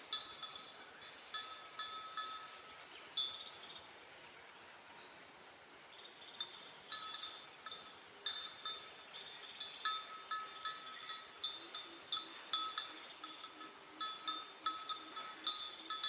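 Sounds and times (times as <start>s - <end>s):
small metal bells ringing: 0.0s - 3.9s, 6.4s - 16.0s.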